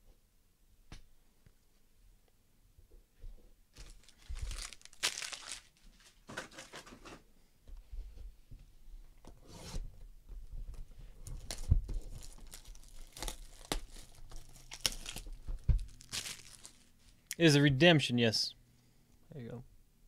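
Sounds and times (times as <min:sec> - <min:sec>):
packaging tearing and crinkling: 0:03.8 - 0:06.9, 0:11.3 - 0:16.9.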